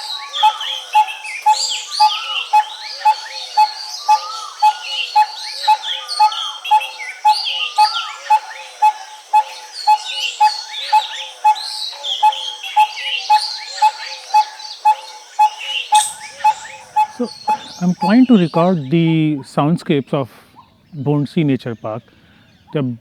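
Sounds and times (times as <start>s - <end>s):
birds chirping and whistling: 0.0s - 22.8s
bird repeating short low note: 12.2s - 19.5s.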